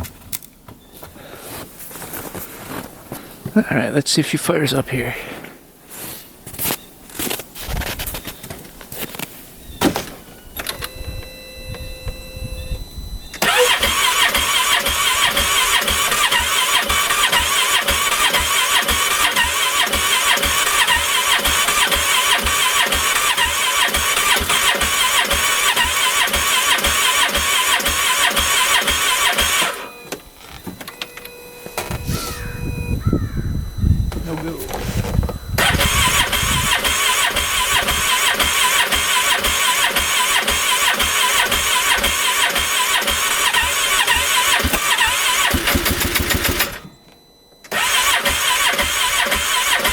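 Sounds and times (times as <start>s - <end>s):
engine cranking on electric starter: 13.3s - 32.7s, 34.0s - 47.0s, 47.6s - 49.9s.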